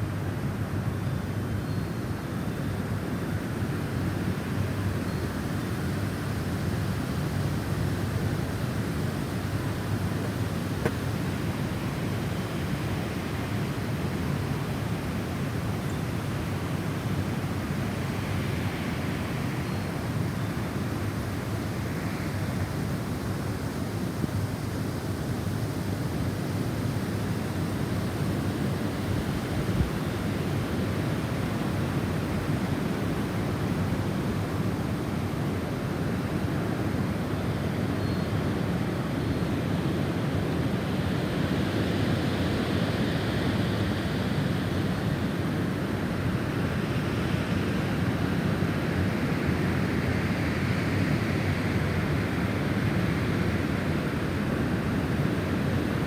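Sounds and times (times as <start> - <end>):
snowstorm wind blowing: 3.6 - 37.6.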